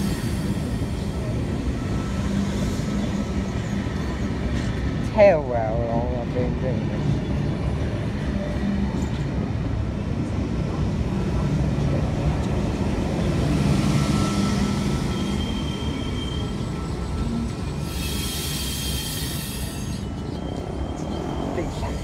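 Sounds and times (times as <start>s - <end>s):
faint high wheel squeal: 0.0s - 4.8s, 13.4s - 22.0s
electric train rumbling past: 0.0s - 22.0s
hiss: 17.8s - 20.0s.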